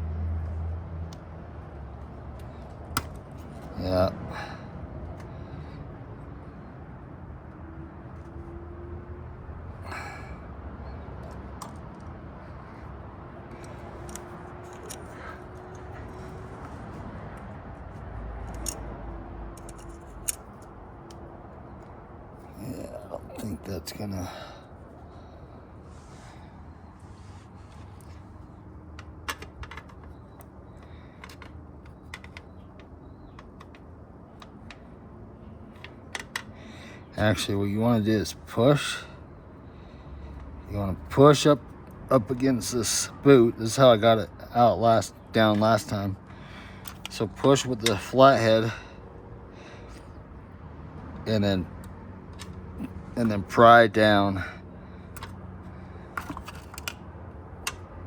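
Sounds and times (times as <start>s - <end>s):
small clicks and knocks of hand work: 13.5s - 17.5s, 18.4s - 18.9s, 19.5s - 22.0s, 28.9s - 35.0s, 35.7s - 36.6s, 46.8s - 48.0s, 55.1s - 55.4s, 56.1s - 58.0s.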